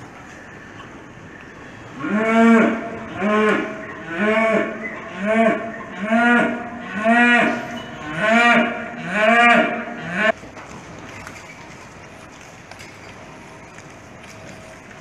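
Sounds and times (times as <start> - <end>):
cattle mooing: 2.0 - 10.3.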